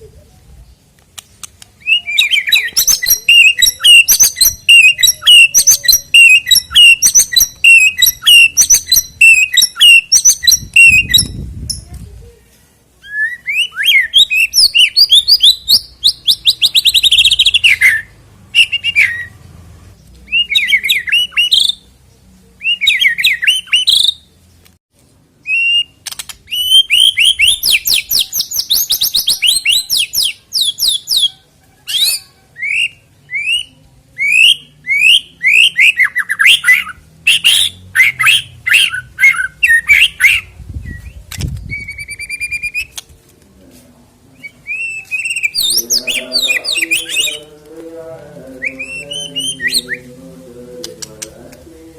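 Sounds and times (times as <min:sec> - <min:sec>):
bird singing whistles and trills: 0:01.8 - 0:11.8, 0:13.0 - 0:19.3, 0:22.6 - 0:24.2, 0:25.4 - 0:42.9, 0:44.4 - 0:47.5.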